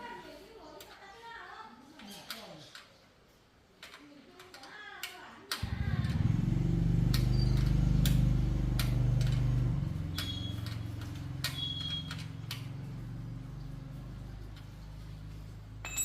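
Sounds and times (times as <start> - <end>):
low mechanical hum: 5.6 - 16.0.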